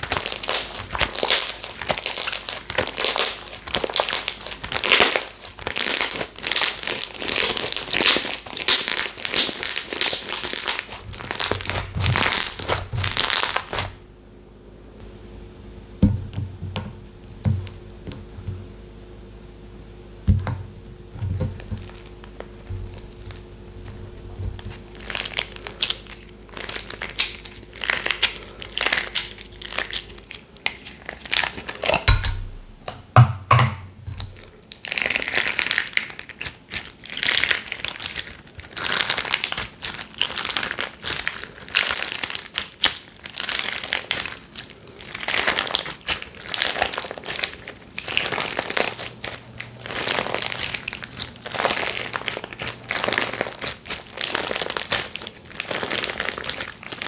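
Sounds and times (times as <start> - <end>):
slime squishing: 0.0 - 14.0, 20.3 - 33.2, 34.0 - 57.0.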